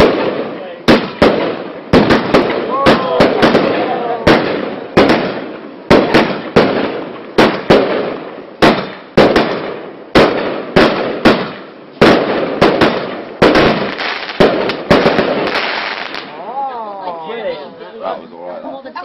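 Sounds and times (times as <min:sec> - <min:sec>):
firework bangs with rumbling echo: 0:00.0 - 0:16.4.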